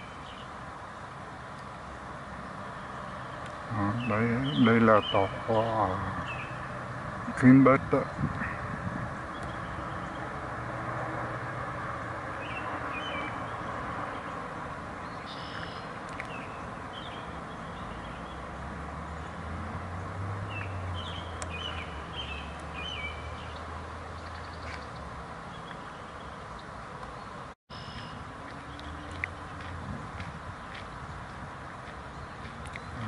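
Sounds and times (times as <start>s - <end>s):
bird chirps: 2.8s - 7.4s, 9.2s - 10.3s, 12.4s - 14.4s, 15.0s - 18.6s, 20.5s - 29.6s.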